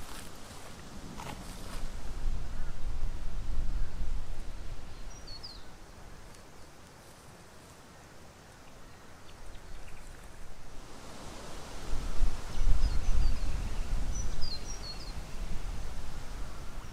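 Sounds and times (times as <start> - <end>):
wind rumbling on microphone: 0.0 - 6.3, 9.3 - 16.9
bird chirp: 4.9 - 6.8, 8.0 - 10.4, 12.5 - 15.4.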